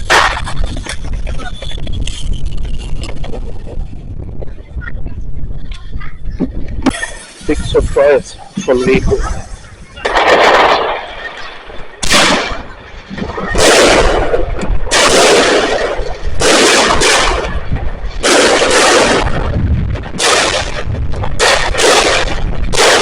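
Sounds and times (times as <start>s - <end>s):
firework battery bangs: 0.0s - 3.6s, 10.0s - 23.0s.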